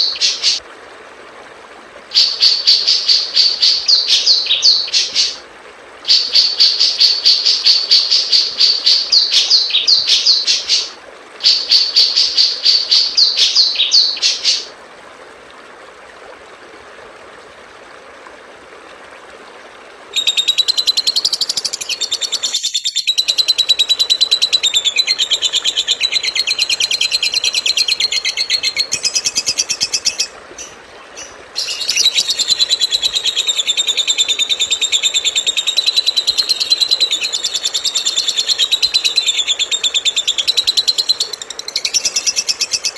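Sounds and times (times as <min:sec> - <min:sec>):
recording hiss: 0:00.0 - 0:42.9.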